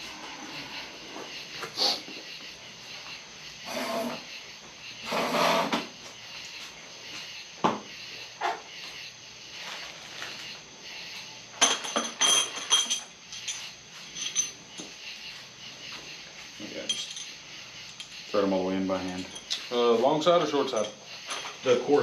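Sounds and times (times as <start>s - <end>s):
metal hardware clinking: 11.6s - 14.6s, 16.8s - 18.2s, 19.0s - 19.7s, 20.7s - 21.6s.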